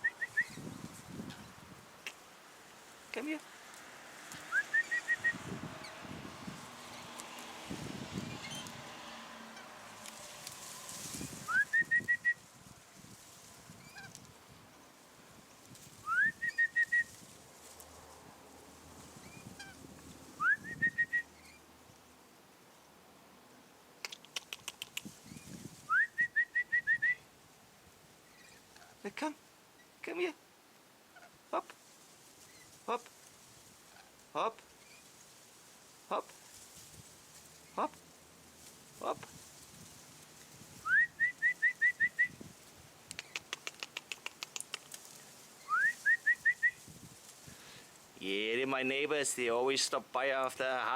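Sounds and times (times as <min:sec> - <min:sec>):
person whistling: 0:16.1 - 0:17.1, 0:25.9 - 0:27.2, 0:40.9 - 0:42.3, 0:45.7 - 0:46.8
sharp clicks: 0:24.0 - 0:25.1, 0:43.0 - 0:45.1
sharp ticks: 0:24.0 - 0:25.1, 0:43.0 - 0:45.1.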